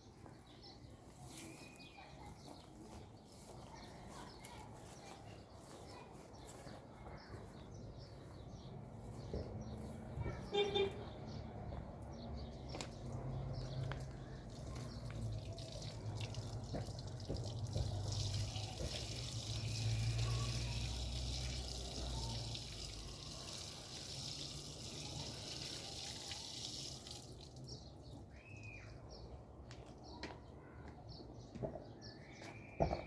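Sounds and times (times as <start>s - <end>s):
water running from tap: 15.6s - 27.7s.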